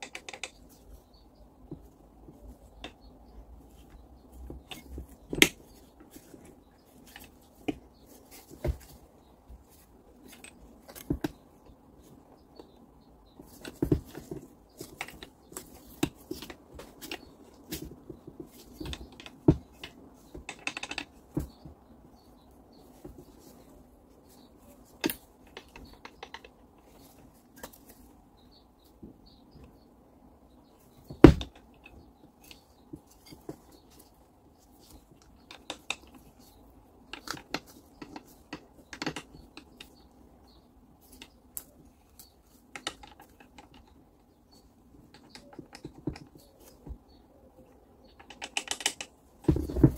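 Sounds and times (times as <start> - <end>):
clicks and taps of metal parts: 0.0 - 0.8, 13.5 - 21.8, 25.0 - 28.0, 34.8 - 40.0, 41.0 - 44.0, 45.0 - 47.0, 48.0 - 49.9.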